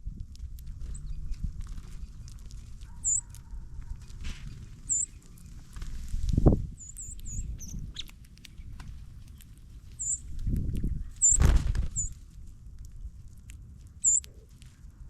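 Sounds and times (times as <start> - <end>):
birds pecking and scratching: 0.2 - 15.0
high bird chip notes: 3.0 - 3.3, 4.8 - 5.5, 6.8 - 8.7, 9.3 - 12.1, 14.0 - 14.5.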